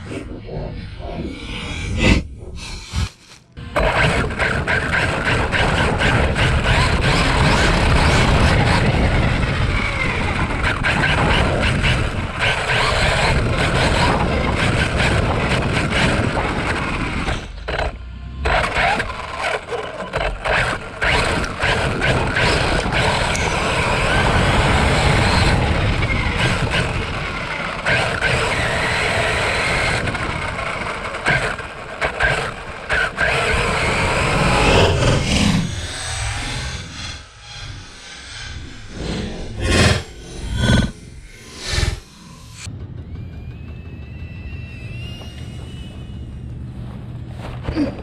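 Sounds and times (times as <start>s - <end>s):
radio-controlled vehicle motors: 0.0s - 25.0s, 25.7s - 37.2s.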